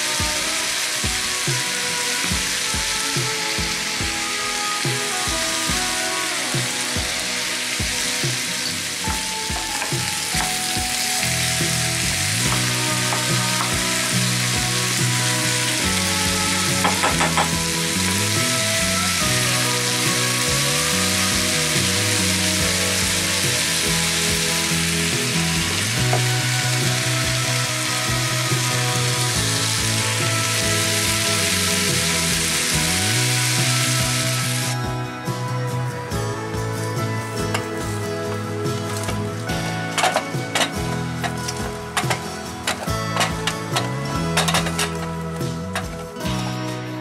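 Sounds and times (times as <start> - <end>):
vegetables sizzling in a pan: 0.0 - 36.2.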